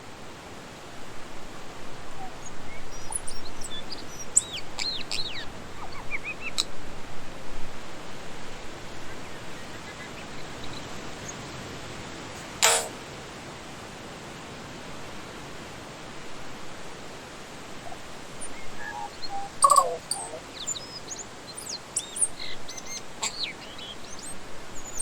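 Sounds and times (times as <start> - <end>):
steady hiss: 0.0 - 25.0
bird singing whistled notes: 2.7 - 5.4, 18.4 - 25.0.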